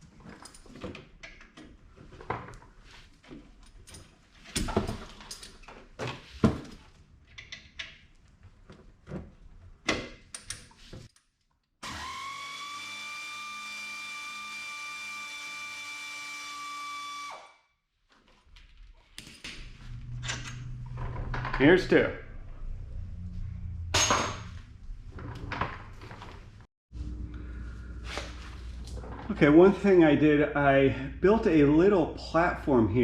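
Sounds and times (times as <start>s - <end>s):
cordless power tool whining: 11.8s - 17.5s.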